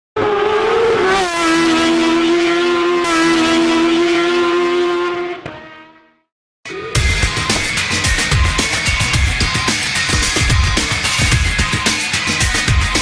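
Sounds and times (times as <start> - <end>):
engine at high revs: 0.2 - 6.0.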